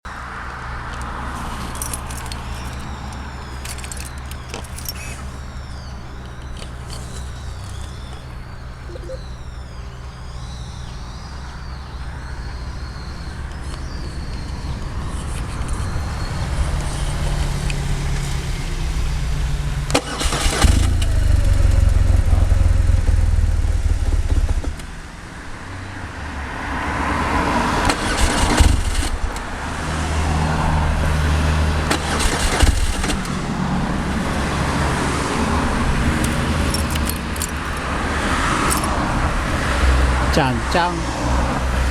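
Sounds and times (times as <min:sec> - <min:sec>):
engine running unevenly: 0:00.4 - 0:25.1, 0:31.8 - 0:40.5.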